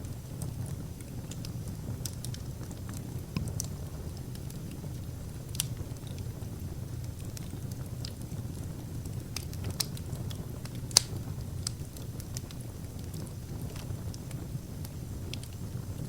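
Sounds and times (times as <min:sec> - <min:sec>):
fire flames rushing: 0:00.0 - 0:16.0
logs crackling and popping: 0:00.0 - 0:16.0.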